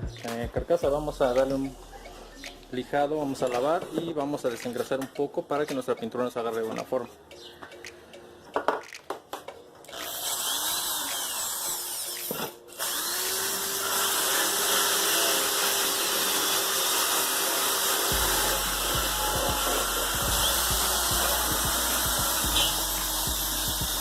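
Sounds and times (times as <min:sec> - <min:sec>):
power tool sanding metal: 0:10.0 - 0:24.0.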